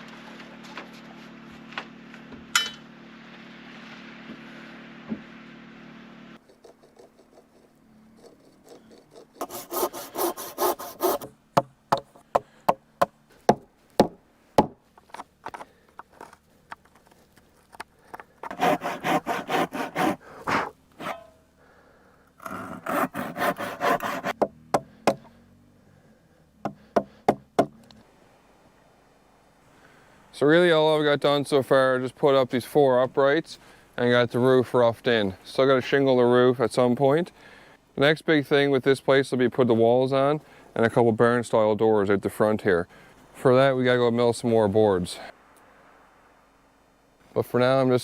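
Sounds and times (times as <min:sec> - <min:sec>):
saw cutting through wood: 0:08.2 - 0:11.3, 0:18.4 - 0:21.3, 0:22.4 - 0:24.4
sharp knocks on wood: 0:24.4 - 0:25.2.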